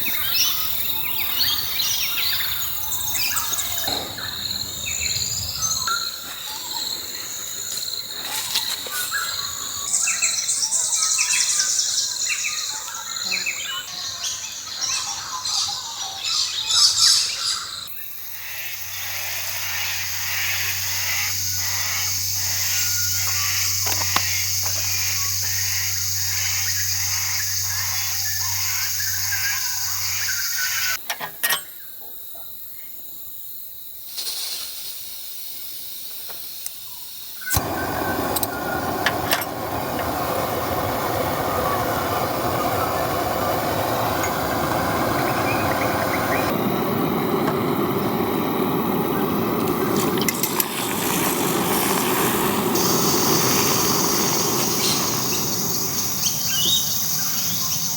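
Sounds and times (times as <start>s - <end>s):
steady hiss with low hum: 37.5s - 57.9s
birds chirping and singing: 37.6s - 57.9s.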